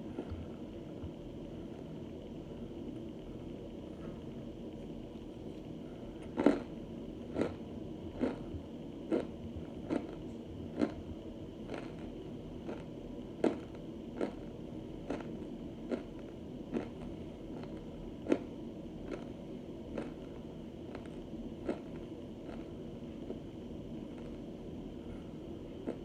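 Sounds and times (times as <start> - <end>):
chewing hard food: 6.2 - 23.4, 25.8 - 26.0.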